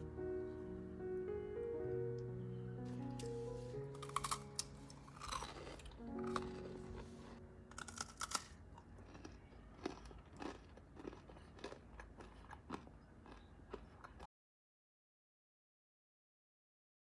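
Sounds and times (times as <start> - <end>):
crunching and chewing macaroon: 3.9 - 14.3.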